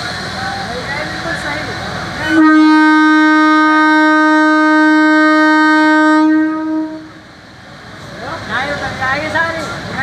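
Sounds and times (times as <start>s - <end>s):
train horn blast: 2.2s - 7.2s.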